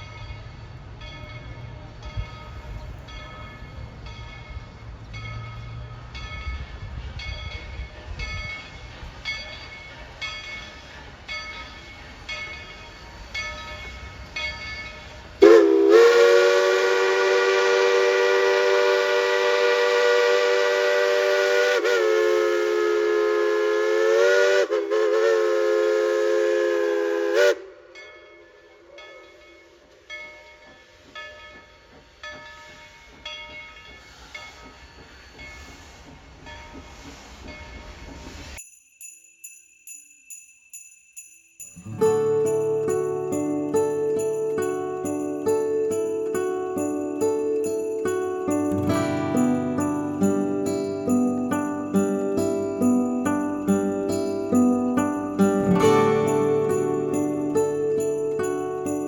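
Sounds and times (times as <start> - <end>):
locomotive bell ringing: 0.0 - 22.2, 27.8 - 35.8, 37.5 - 59.0
steam whistle blast: 15.4 - 27.9.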